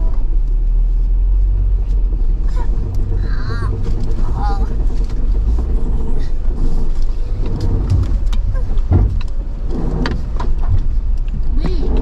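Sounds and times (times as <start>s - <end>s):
low engine rumble: 0.0s - 12.0s
suspension knocks and clunks: 0.0s - 12.0s.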